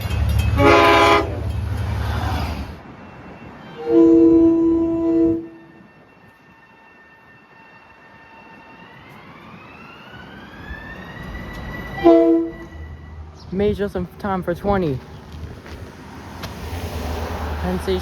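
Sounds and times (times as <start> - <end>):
train horn blasts: 0.5 - 1.6, 3.8 - 5.7, 12.0 - 13.1.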